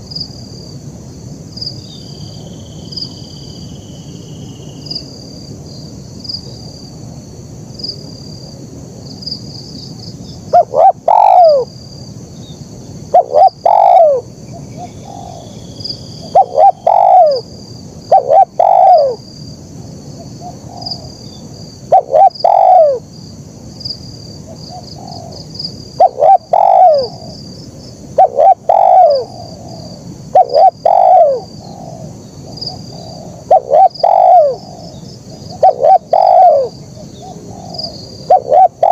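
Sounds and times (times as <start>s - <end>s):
dove cooing: 10.5s - 11.7s, 13.1s - 14.3s, 15.0s - 15.4s, 16.3s - 17.5s, 18.1s - 19.2s, 21.9s - 23.0s, 24.5s - 25.4s, 26.0s - 27.4s, 28.2s - 38.9s.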